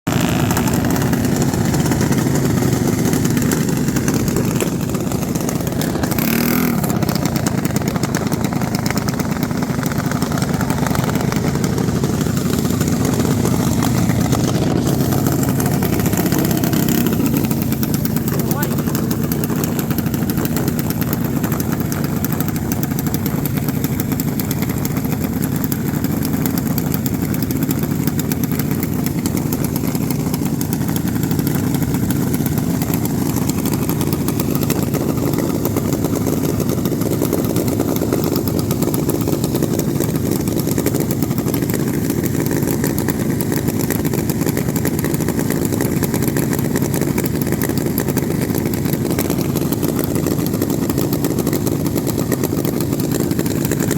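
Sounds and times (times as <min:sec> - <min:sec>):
mini bike engine idling: 0:00.1 - 0:53.9.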